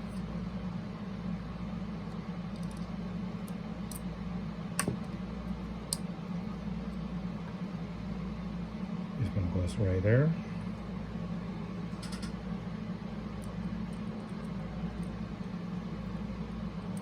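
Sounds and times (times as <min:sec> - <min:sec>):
low room hum: 0:00.0 - 0:17.0
light clicks handling small parts: 0:02.1 - 0:04.1.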